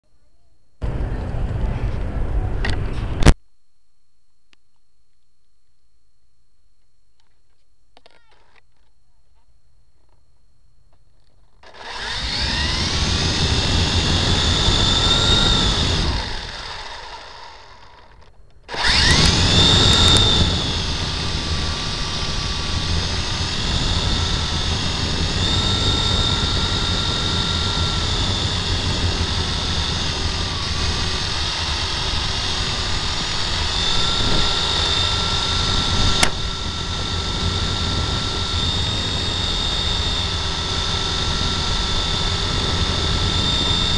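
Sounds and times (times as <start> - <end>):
model helicopter motor whine: 11.6 - 43.9.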